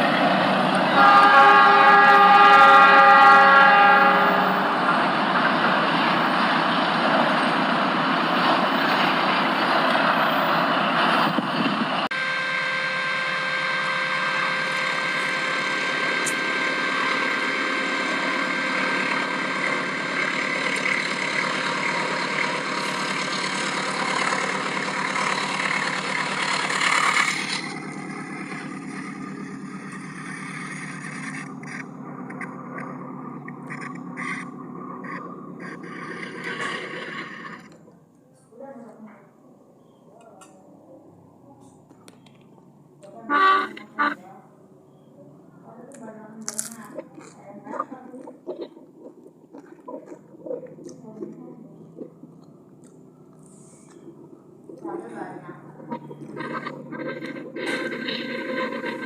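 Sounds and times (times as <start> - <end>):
train rumbling and rattling: 0.0 - 12.2, 13.2 - 38.0, 45.7 - 59.0
train horn: 0.7 - 5.0, 12.1 - 19.9, 43.0 - 44.2.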